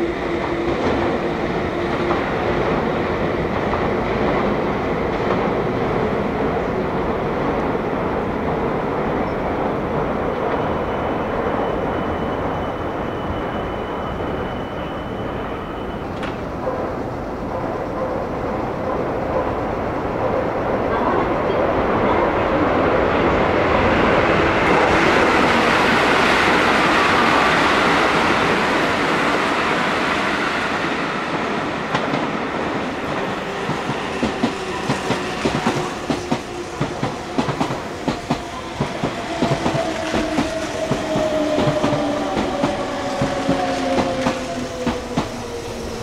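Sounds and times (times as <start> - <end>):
electric train rumbling: 0.0 - 46.0
wheels clacking over rail joints: 33.2 - 45.8.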